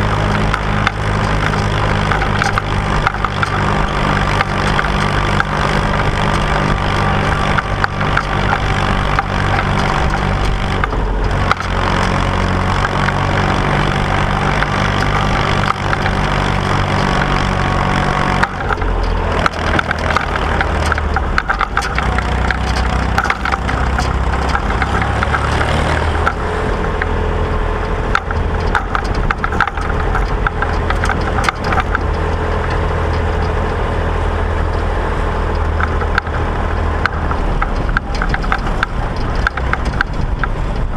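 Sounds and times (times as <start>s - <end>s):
machinery rattling and clattering: 0.0s - 40.9s
tractor engine running: 0.0s - 40.9s.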